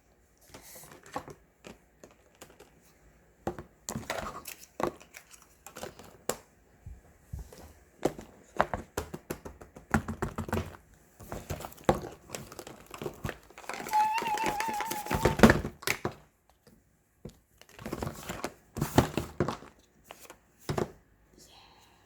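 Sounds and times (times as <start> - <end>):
paper crinkling and rustling: 11.3 - 15.7.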